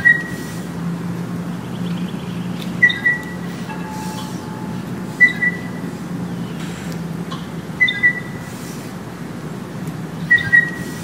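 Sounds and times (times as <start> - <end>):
steady low hum: 0.0 - 11.0
faint wind-chime tone: 2.8 - 6.8
bird two-note call: 2.8 - 8.4.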